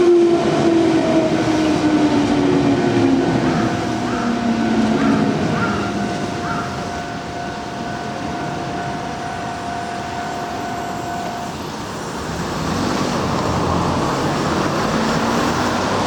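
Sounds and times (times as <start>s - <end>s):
train wheel-on-rail rumble: 0.0s - 16.0s.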